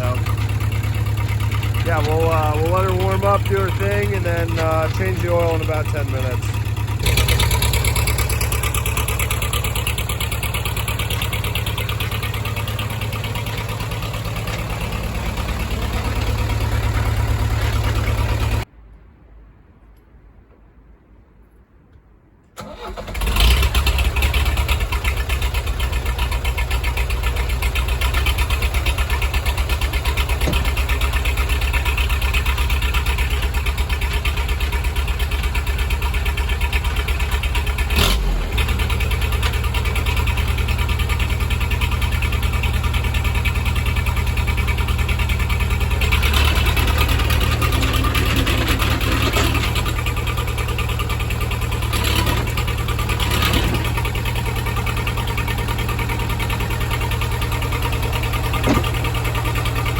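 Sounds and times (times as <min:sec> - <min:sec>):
bulldozer diesel engine running: 0:00.0 - 0:18.7, 0:22.6 - 0:59.9.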